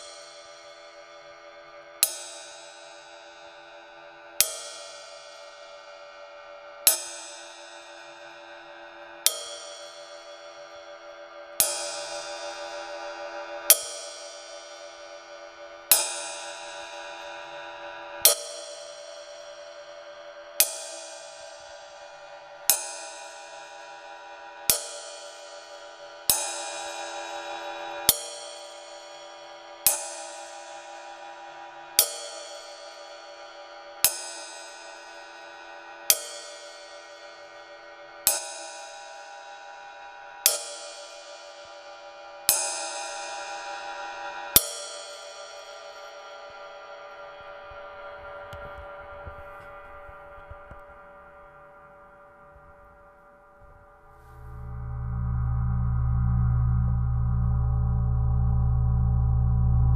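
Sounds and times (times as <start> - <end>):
ride cymbal struck with stick: 6.8 - 47.9, 53.6 - 59.9.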